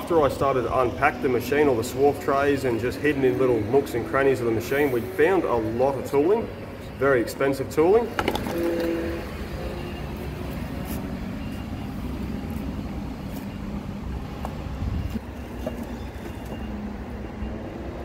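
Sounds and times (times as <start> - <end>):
heavy vehicle engine running: 7.7 - 18.0.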